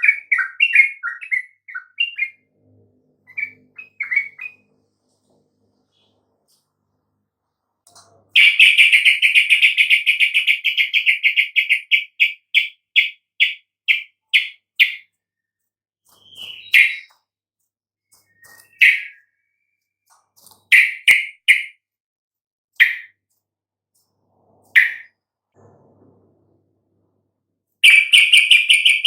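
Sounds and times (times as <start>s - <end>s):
bulbul song: 16.1s - 17.3s, 18.1s - 19.9s, 24.8s - 25.2s, 27.8s - 29.0s.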